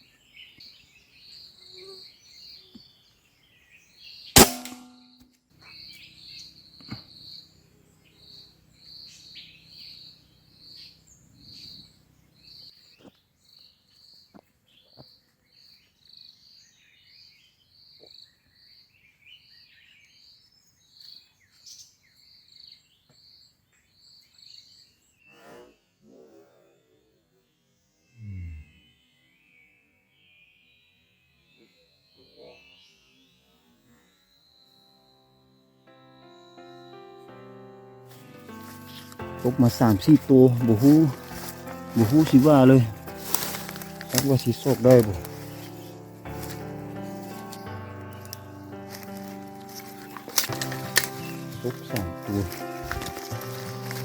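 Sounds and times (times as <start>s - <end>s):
air rifle firing: 4.4s - 5.1s
insect chirping: 31.7s - 37.2s.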